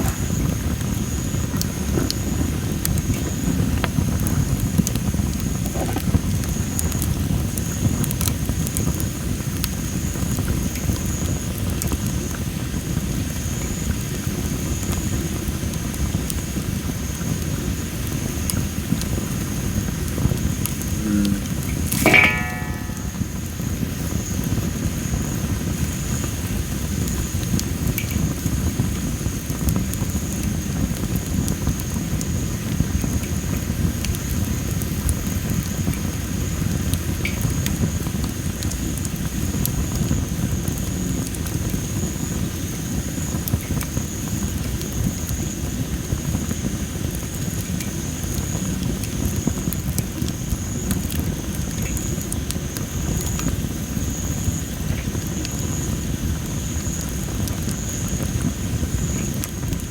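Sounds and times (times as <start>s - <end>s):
campfire crackling and popping: 0.0s - 59.9s
thin high tone: 22.0s - 23.4s.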